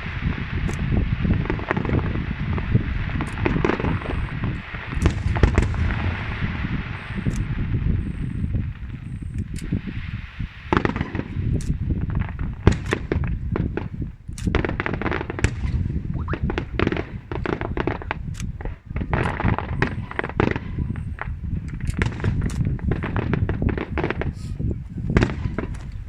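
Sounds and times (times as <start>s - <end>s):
sharp firework bangs: 0.0s - 25.8s
fireworks crackling: 0.0s - 26.0s
low rumble: 2.5s - 9.5s.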